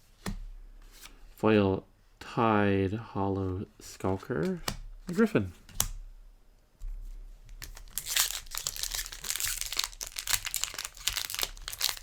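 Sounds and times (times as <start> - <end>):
plastic wrapper crinkling and tearing: 7.6 - 12.0.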